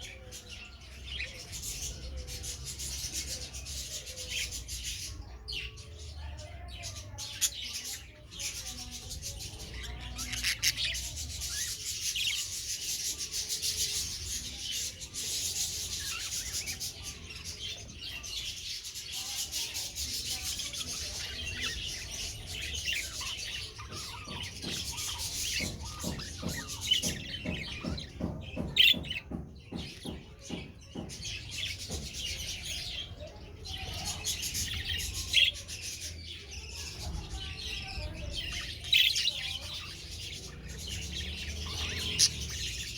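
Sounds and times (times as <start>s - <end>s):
budgerigars chattering and chirping: 0.0s - 42.9s.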